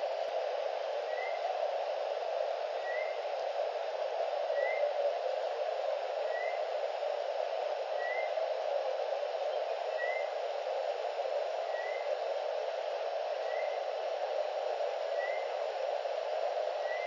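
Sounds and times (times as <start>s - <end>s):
microphone hiss: 0.0s - 17.0s
faint bird chirp: 8.0s - 8.4s, 9.4s - 10.4s, 11.7s - 12.1s, 13.4s - 13.8s, 15.2s - 15.5s.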